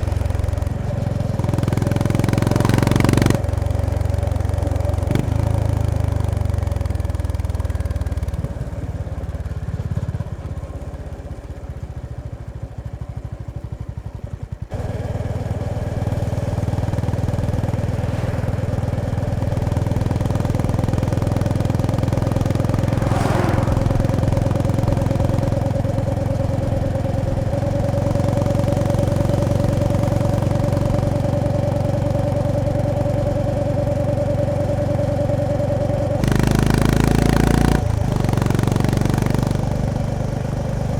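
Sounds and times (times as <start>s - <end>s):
motorcycle engine and exhaust: 0.0s - 40.9s
brief whoosh: 17.4s - 26.9s.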